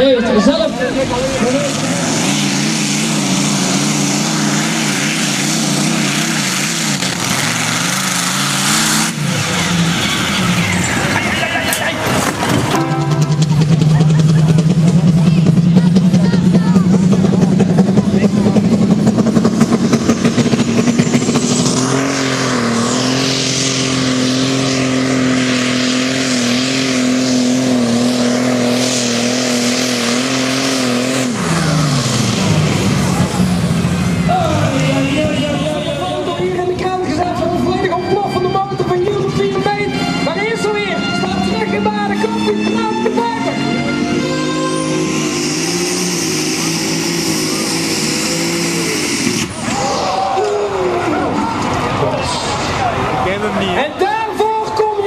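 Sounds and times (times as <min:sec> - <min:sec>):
loud rushing exhaust: 0:00.0 - 0:55.0
tractor engine at high revs: 0:00.0 - 0:55.0.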